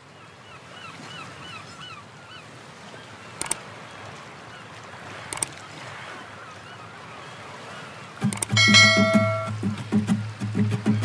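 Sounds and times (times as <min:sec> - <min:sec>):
sharp clicks: 0:03.4 - 0:03.6, 0:05.3 - 0:05.6, 0:08.2 - 0:08.6.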